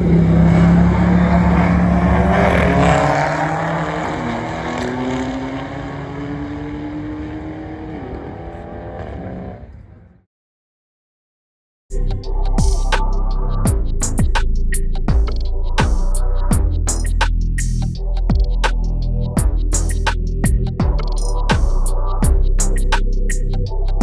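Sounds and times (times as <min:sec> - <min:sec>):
motor vehicle engine running: 0:00.0 - 0:04.8.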